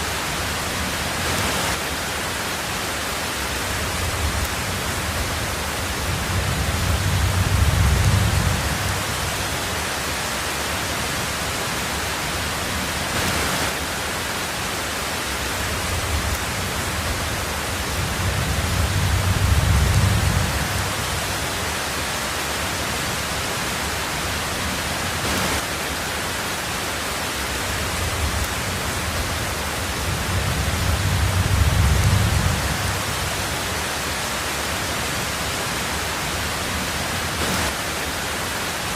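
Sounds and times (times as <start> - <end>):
heavy rain on a tin roof: 0.0 - 38.9
low thunder rumble: 3.6 - 9.7, 15.7 - 21.6, 27.8 - 33.6.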